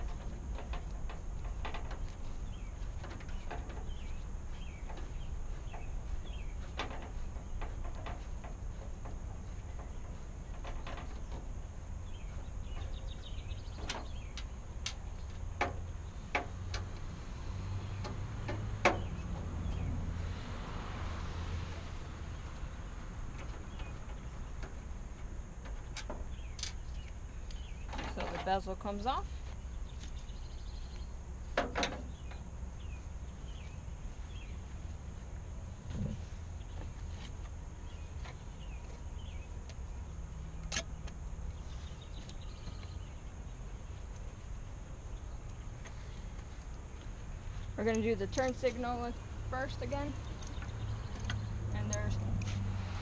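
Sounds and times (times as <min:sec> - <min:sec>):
low outdoor rumble: 0:00.0 - 0:53.0
steady low hum: 0:00.0 - 0:53.0
small bird chirping: 0:02.2 - 0:07.7, 0:37.8 - 0:52.2.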